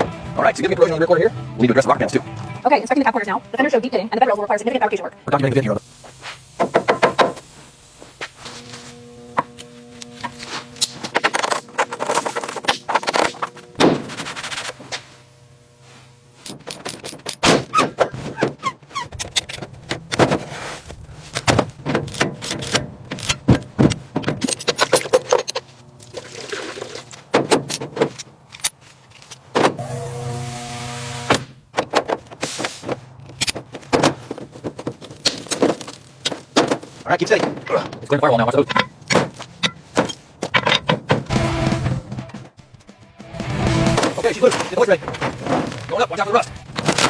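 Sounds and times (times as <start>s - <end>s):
faint steady tones: 0.0s - 17.1s
tools clanking on metal: 21.4s - 25.7s, 37.3s - 41.2s.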